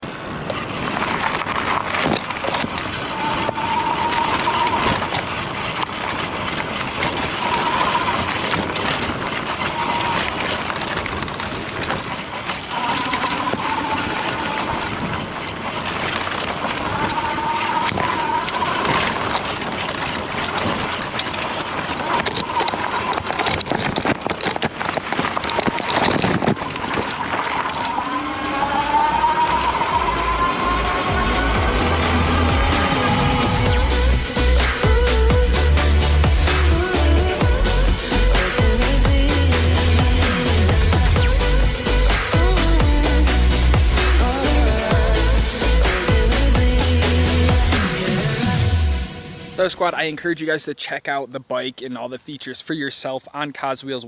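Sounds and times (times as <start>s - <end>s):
wind rushing: 26.1s - 49.9s
electric motor whine: 27.9s - 49.4s.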